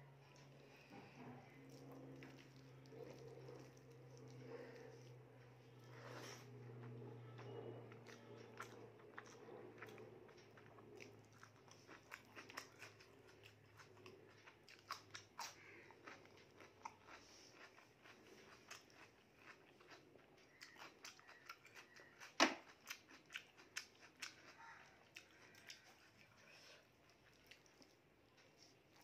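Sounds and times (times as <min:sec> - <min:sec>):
chewing and mouth clicks: 0:00.3 - 0:29.0.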